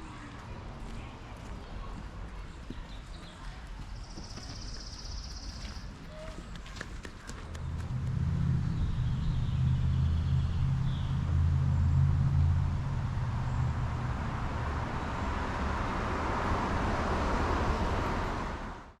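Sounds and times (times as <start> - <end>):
tyre noise on road: 0.1 - 19.0
car engine hum: 7.5 - 19.0.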